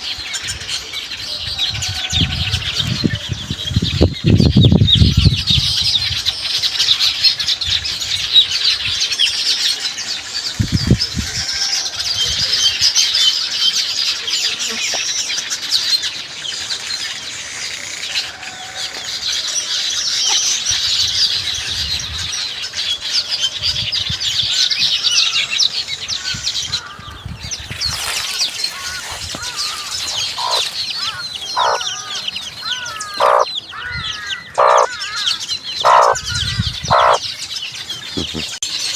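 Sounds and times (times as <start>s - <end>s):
weaver birds chattering: 0.0s - 38.9s
loud single bird calls: 27.9s - 37.2s.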